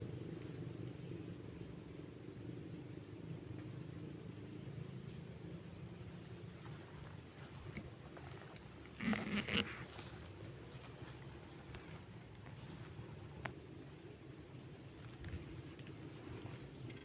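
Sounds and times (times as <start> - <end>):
fast low insect chirp: 0.0 - 17.0
high pulsing insect buzz: 0.0 - 17.0.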